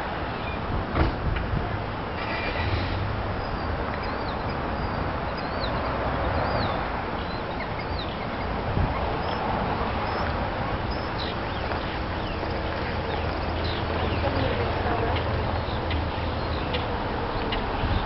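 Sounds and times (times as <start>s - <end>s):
small birds high chirps: 3.4s - 18.0s.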